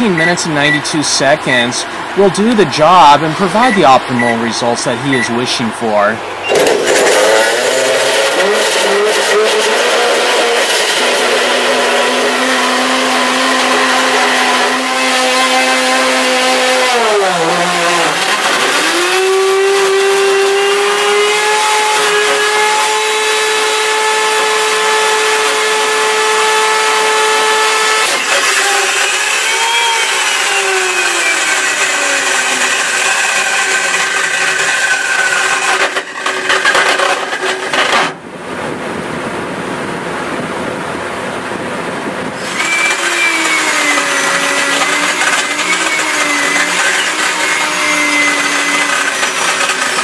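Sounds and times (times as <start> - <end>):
blender motor whining: 6.4 - 38.2, 42.4 - 50.0.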